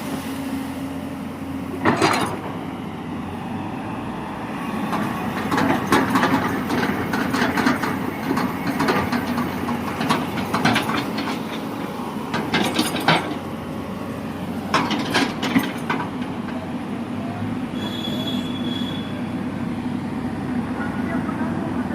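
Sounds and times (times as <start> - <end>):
construction machinery engine: 0.0 - 21.9
clattering and metallic clanks: 1.8 - 2.6, 4.9 - 13.5, 14.7 - 16.6.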